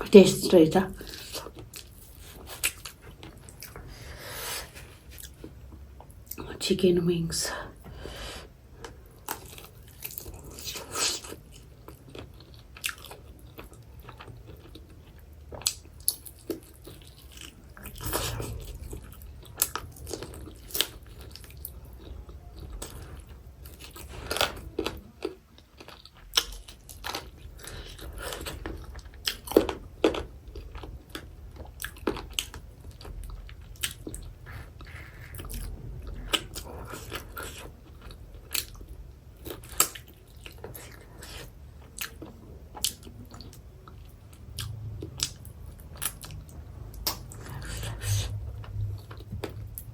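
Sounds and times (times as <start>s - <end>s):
wet mouth sounds: 33.8s - 37.3s.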